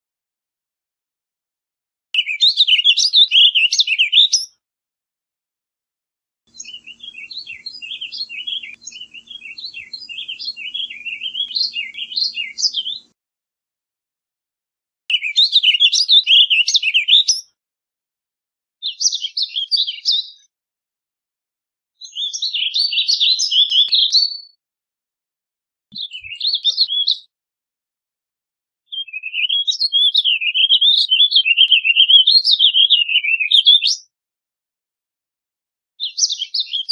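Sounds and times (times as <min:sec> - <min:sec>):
bird warbling: 0:06.6 - 0:13.0.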